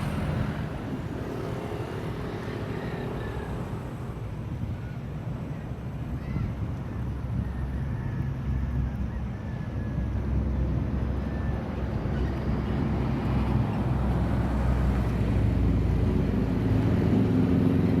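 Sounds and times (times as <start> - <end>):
engine droning: 0.0 - 5.7.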